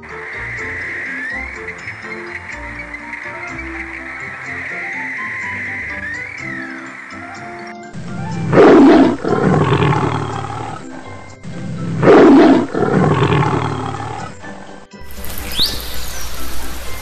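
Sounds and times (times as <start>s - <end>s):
tiger roaring: 8.4s - 14.8s.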